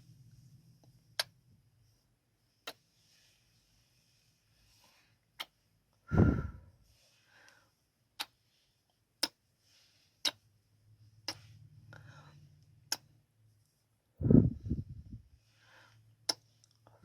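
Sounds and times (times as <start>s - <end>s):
low puff: 6.1s - 6.7s, 14.2s - 15.2s.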